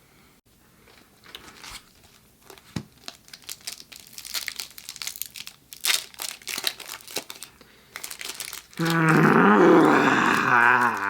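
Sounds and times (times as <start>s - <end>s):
foil wrapper crinkling: 1.2s - 9.5s.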